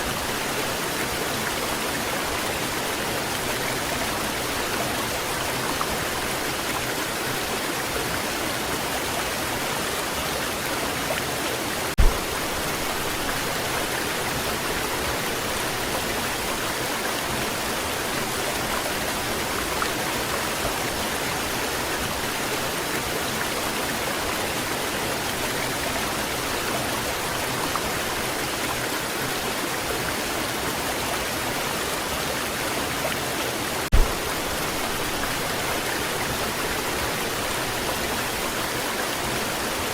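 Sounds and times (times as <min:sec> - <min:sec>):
waterfall roaring: 0:00.0 - 0:39.9
low thumps: 0:12.0 - 0:13.3, 0:33.9 - 0:34.8.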